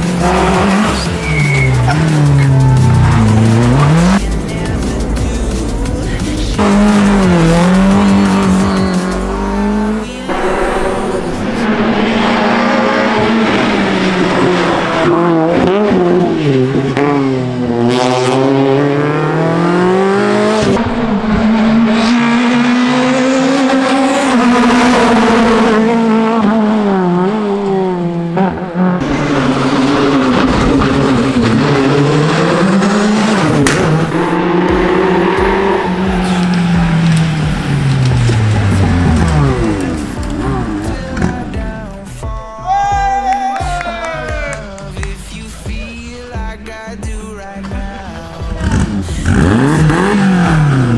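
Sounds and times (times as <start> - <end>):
rally car engines revving: 0.0 - 42.2, 47.5 - 50.9
tyre squeal: 0.2 - 4.2, 7.6 - 9.3.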